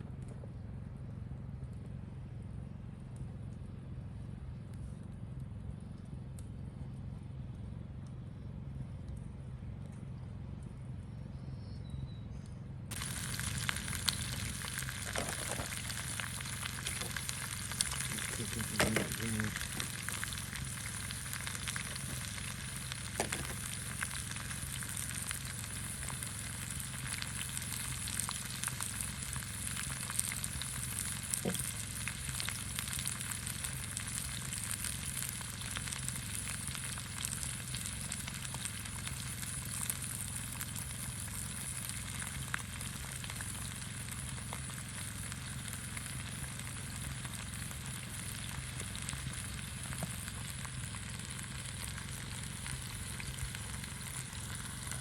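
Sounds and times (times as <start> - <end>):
fire crackles and pops: 0.0 - 11.2, 12.3 - 55.0
food sizzling in a pan: 12.9 - 55.0.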